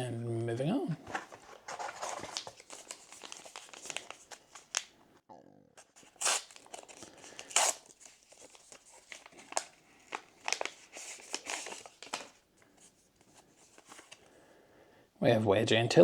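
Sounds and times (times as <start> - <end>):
wrapper tearing and crinkling: 1.1 - 4.9, 5.8 - 12.4.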